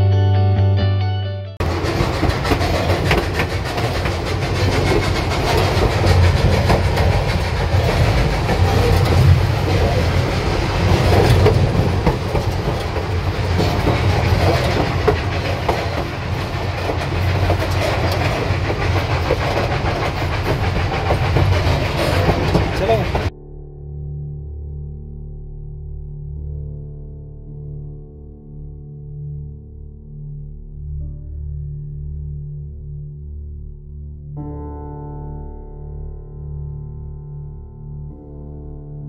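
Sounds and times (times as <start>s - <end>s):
train car rumbling: 1.6s - 23.3s
wheels clicking on rails: 1.6s - 23.3s.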